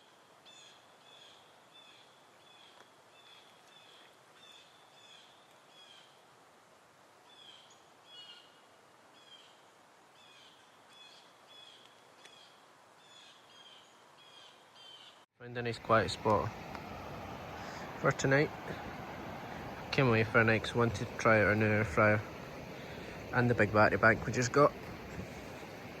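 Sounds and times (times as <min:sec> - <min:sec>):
faint steady hiss: 0:00.0 - 0:26.0
bird chirping: 0:10.2 - 0:15.2.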